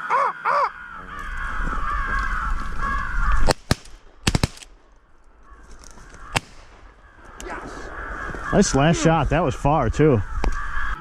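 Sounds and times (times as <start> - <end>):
crow cawing: 0.0 - 3.5, 5.4 - 11.0
shotgun shots: 3.5 - 4.7, 6.3 - 6.9.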